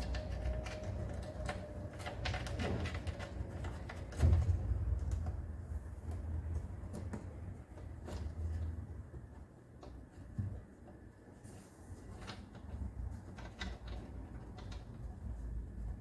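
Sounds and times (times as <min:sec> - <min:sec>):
objects clicking and knocking: 0:00.0 - 0:05.4
low steady hum: 0:00.0 - 0:16.0.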